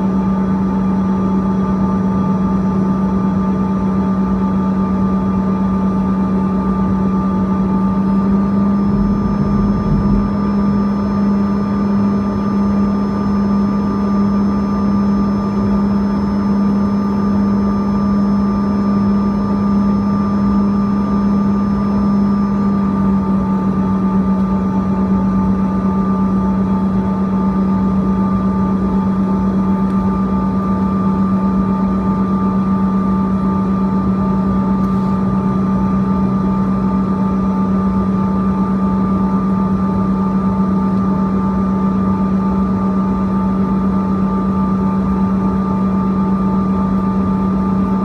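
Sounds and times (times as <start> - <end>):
jet engines humming in cabin: 0.0 - 48.0
short low rumble: 8.4 - 12.4.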